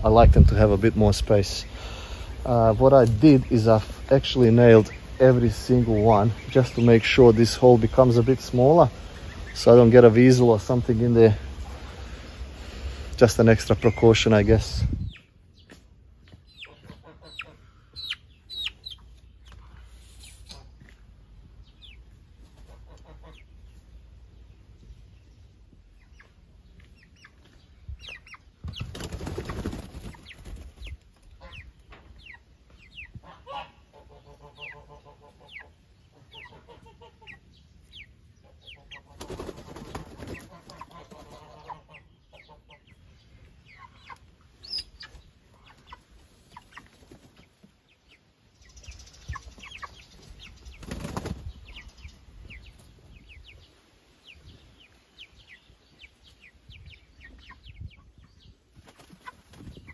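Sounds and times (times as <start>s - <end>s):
chicks peeping: 0.0s - 59.9s
drawn-out chicken call: 16.6s - 19.9s, 33.0s - 37.5s, 40.2s - 42.9s
chickens flapping wings: 28.6s - 31.2s, 39.0s - 41.5s, 46.5s - 47.7s, 50.5s - 51.8s, 58.7s - 59.9s.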